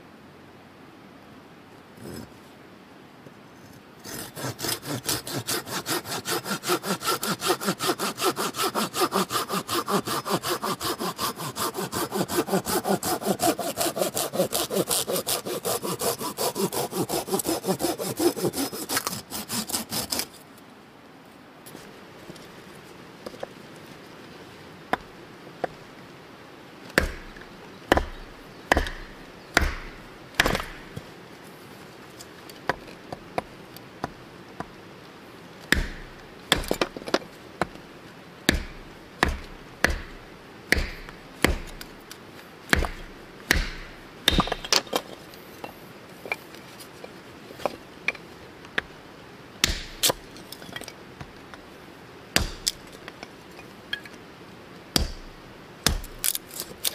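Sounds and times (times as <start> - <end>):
chopping blows on wood: 27.0 - 31.0, 35.7 - 36.9, 38.5 - 41.9, 42.7 - 44.8, 49.6 - 50.2, 52.4 - 52.8, 55.0 - 56.4.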